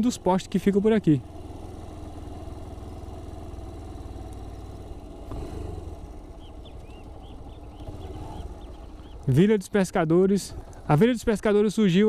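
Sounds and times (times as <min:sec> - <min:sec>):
motorcycle engine running slowly: 0:00.0 - 0:11.9
bird chirping: 0:04.3 - 0:09.8.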